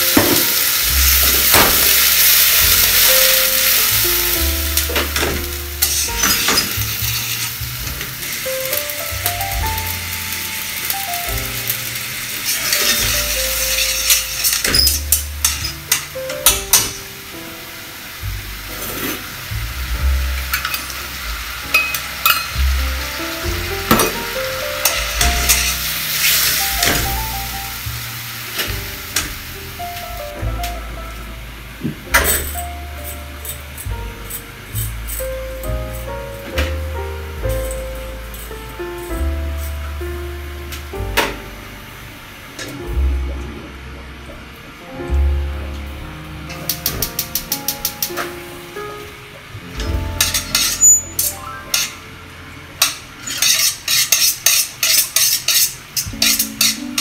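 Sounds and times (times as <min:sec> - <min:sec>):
chicken sizzling in a wok: 0:00.0 - 0:42.9, 0:49.8 - 0:57.0
background music: 0:00.0 - 0:53.4
metal tongs clicking on pan: 0:13.7 - 0:16.8, 0:46.7 - 0:48.2, 0:50.2 - 0:52.0, 0:52.8 - 0:57.0.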